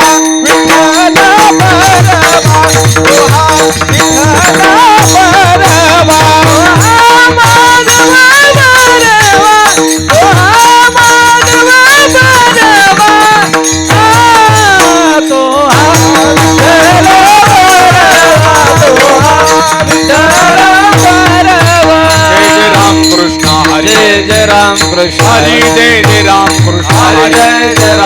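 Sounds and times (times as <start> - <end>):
hand drum rhythm: 0.0 - 28.0
person singing wavering melody: 0.0 - 28.0.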